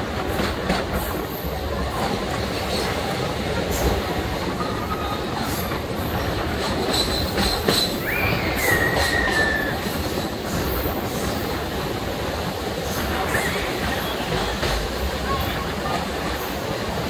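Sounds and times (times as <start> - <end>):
train rumble and rattle: 0.0 - 17.0
high wheel squeal: 6.9 - 11.4.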